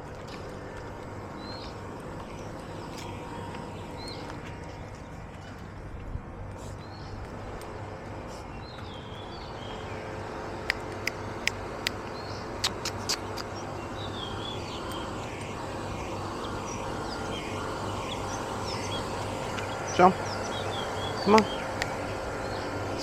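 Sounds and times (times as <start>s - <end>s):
small birds chirping: 0.0s - 5.7s, 6.6s - 23.0s
street background hum: 0.0s - 23.0s
sharp clicks: 12.6s - 13.6s.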